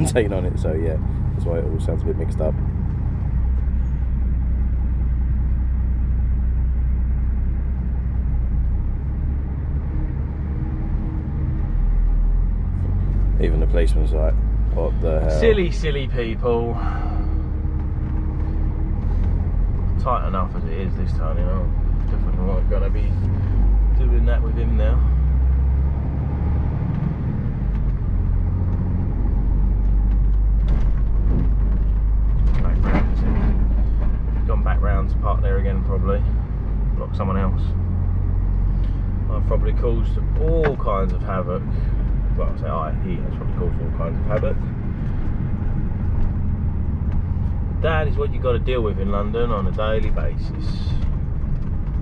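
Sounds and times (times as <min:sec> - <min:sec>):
lorry diesel engine rumbling: 0:00.0 - 0:03.3, 0:12.2 - 0:17.2.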